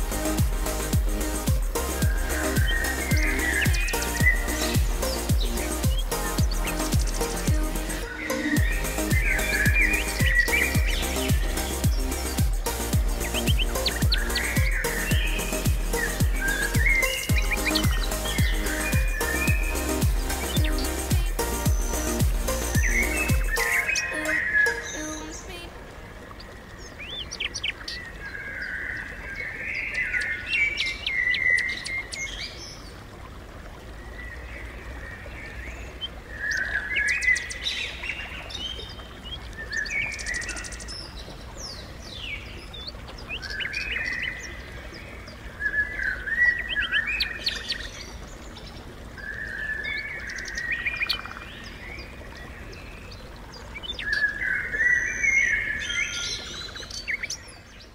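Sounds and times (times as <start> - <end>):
birds chirping: 0.0 - 32.9.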